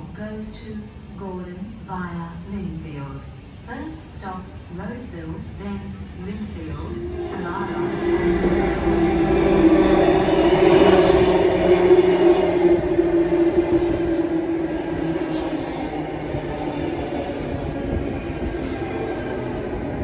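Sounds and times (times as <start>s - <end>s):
electric train passing: 6.1s - 20.0s.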